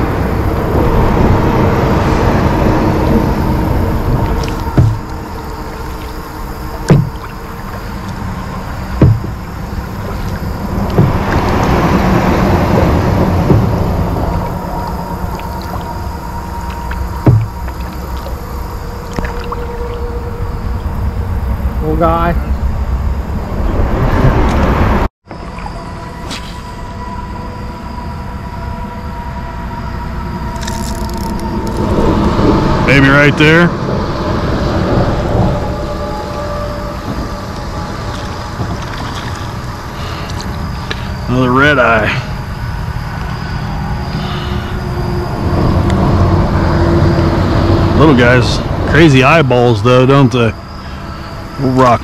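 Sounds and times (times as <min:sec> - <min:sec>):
low rumble: 0:00.0 - 0:25.1
vehicle approaching: 0:00.0 - 0:25.5
distant road traffic rumble: 0:00.0 - 0:52.0
hollow thumps on a kayak: 0:04.0 - 0:18.5.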